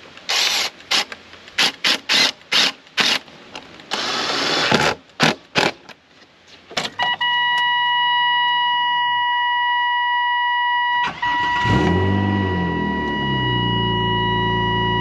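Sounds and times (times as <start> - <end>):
electronic warning tone: 7.0 - 15.0
car engine cranking: 11.0 - 14.0.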